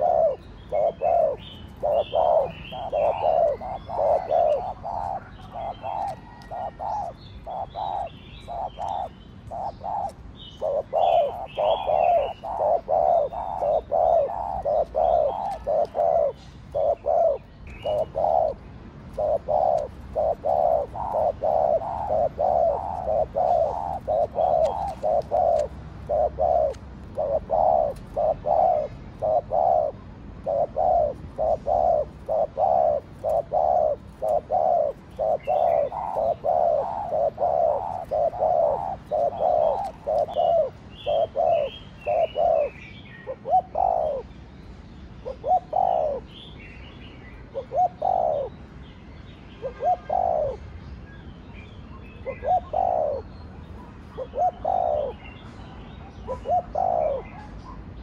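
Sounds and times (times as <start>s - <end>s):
dove cooing: 0.0s - 44.3s, 45.2s - 46.5s, 47.5s - 48.5s, 49.6s - 50.6s, 52.2s - 53.3s, 54.0s - 55.4s, 56.0s - 57.5s.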